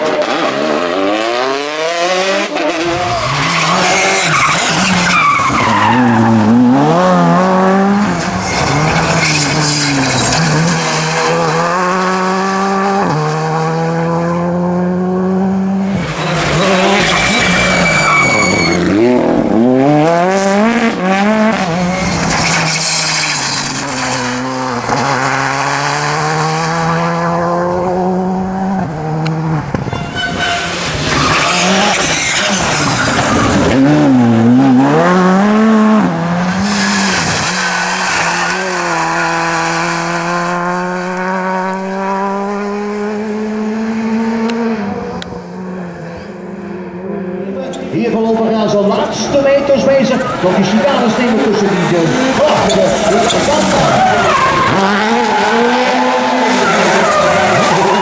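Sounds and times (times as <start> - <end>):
rally car engines revving: 0.0 - 58.0
tyre squeal: 3.0 - 6.4, 16.1 - 19.2, 29.9 - 33.8, 52.4 - 58.0.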